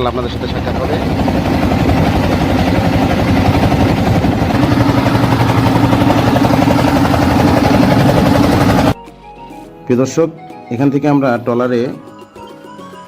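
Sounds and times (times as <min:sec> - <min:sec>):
boat engine chugging: 0:00.0 - 0:09.0.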